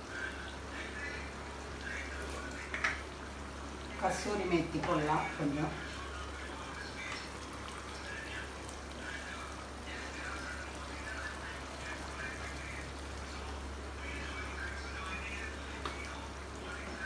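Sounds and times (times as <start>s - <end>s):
gravy bubbling and sizzling: 0.0s - 17.0s.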